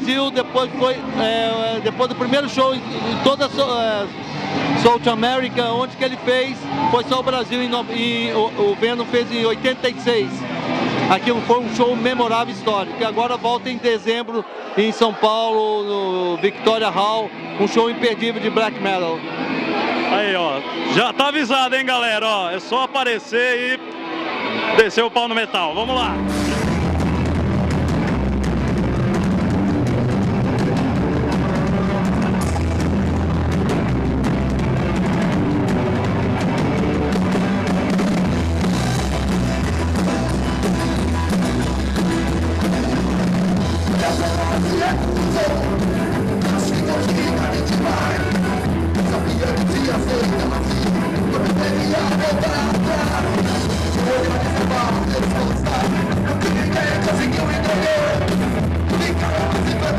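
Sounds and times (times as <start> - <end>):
rock band playing punk rock: 0.0 - 13.7, 16.4 - 22.3, 25.4 - 59.9
drum kit: 26.1 - 59.9
person singing: 43.8 - 59.9.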